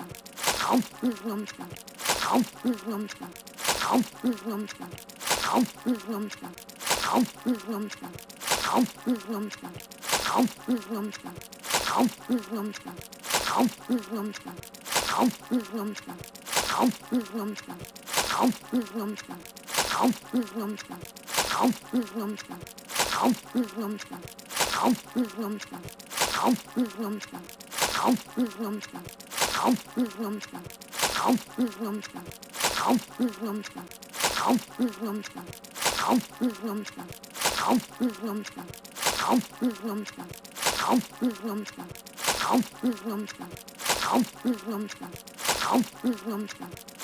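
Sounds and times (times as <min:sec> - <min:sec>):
cartoon squelchy swish: 0:00.0 - 0:05.9, 0:06.8 - 0:07.5, 0:08.4 - 0:11.1, 0:11.7 - 0:12.3, 0:13.3 - 0:13.9, 0:14.9 - 0:19.1, 0:19.7 - 0:20.3, 0:21.3 - 0:21.8, 0:22.4 - 0:46.7
wet chomping: 0:00.0 - 0:47.0
muffled full-mouthed humming grunts: 0:00.8 - 0:01.8, 0:02.4 - 0:03.4, 0:04.0 - 0:04.9, 0:05.6 - 0:06.6, 0:07.2 - 0:08.2, 0:08.8 - 0:09.8, 0:10.4 - 0:11.4, 0:12.0 - 0:13.0, 0:13.6 - 0:14.6, 0:15.2 - 0:16.2, 0:16.8 - 0:17.8, 0:18.5 - 0:19.4, 0:20.1 - 0:21.0, 0:21.7 - 0:22.6, 0:23.3 - 0:24.2, 0:24.9 - 0:25.8, 0:26.7 - 0:27.4, 0:28.2 - 0:29.0, 0:29.8 - 0:30.6, 0:31.4 - 0:32.3, 0:33.0 - 0:33.9, 0:34.5 - 0:35.5, 0:36.2 - 0:37.1, 0:37.9 - 0:38.7, 0:39.4 - 0:40.3, 0:41.0 - 0:41.9, 0:42.8 - 0:43.5, 0:44.4 - 0:45.1, 0:46.0 - 0:46.7.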